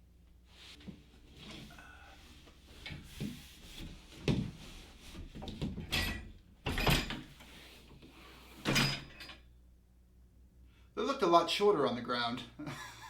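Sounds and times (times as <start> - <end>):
folding table knocks and clatters: 5.2 - 7.3.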